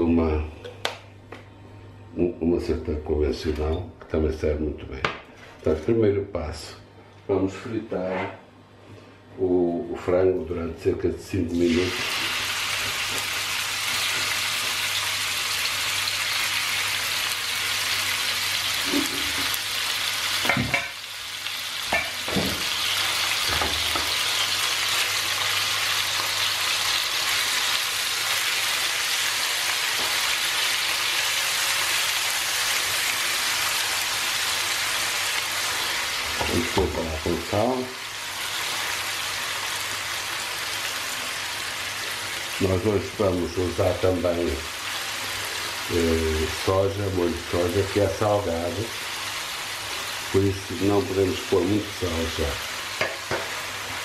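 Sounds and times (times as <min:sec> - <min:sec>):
chicken sizzling in frying pan: 0:11.5 - 0:54.0.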